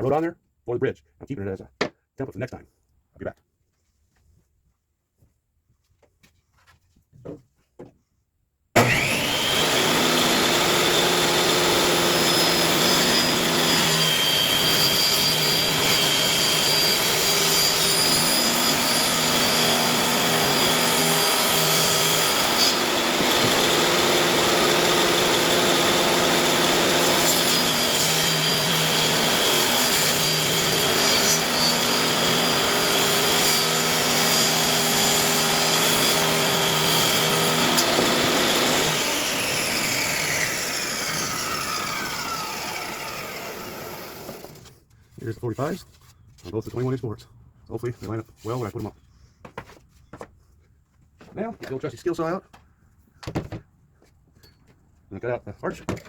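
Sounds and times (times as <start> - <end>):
table saw cutting wood: 8.8 - 44.8.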